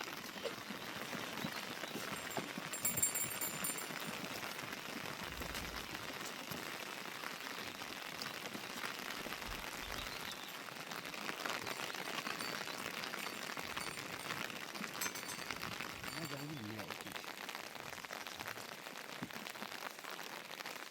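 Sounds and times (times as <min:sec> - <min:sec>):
light rain falling: 0:00.0 - 0:20.9.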